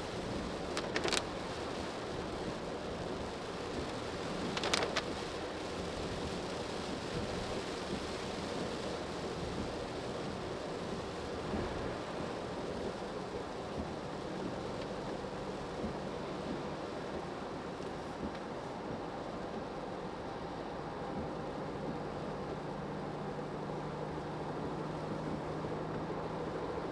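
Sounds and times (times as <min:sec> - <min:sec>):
road and tyre noise in car: 0:00.0 - 0:26.9
sharp clicks: 0:00.7 - 0:01.3, 0:04.5 - 0:05.1.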